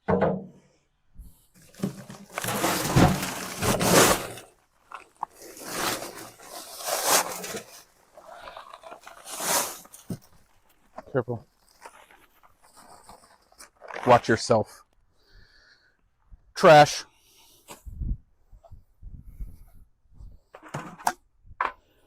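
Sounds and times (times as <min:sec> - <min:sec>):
paper bag crinkling and tearing: 0:01.7 - 0:10.1.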